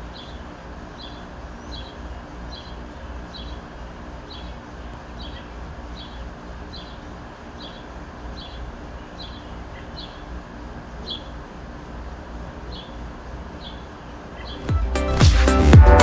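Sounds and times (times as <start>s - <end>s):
air conditioner humming: 0.0s - 16.0s
fan rushing: 0.0s - 16.0s.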